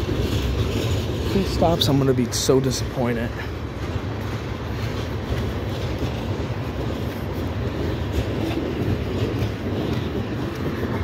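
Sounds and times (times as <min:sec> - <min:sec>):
freight train rumbling past: 0:00.0 - 0:11.0
wheels clicking over rail joints: 0:00.0 - 0:11.0.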